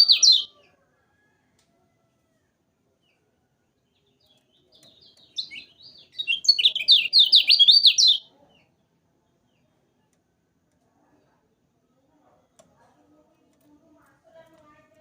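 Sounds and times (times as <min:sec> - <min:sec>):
songbird singing high chirps: 0:00.0 - 0:00.5, 0:03.9 - 0:08.3.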